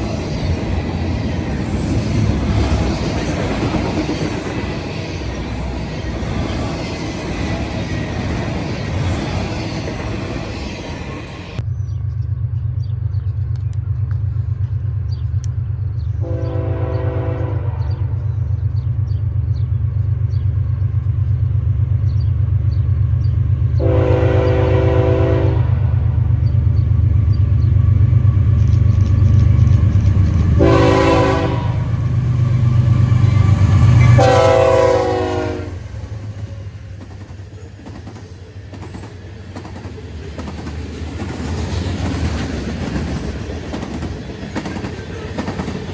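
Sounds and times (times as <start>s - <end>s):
train cars rolling: 0.0s - 11.7s, 13.4s - 45.9s
diesel locomotive engine droning: 0.0s - 45.9s
locomotive air horn blasts: 16.2s - 18.2s, 23.8s - 26.0s, 30.6s - 32.1s, 33.3s - 36.6s.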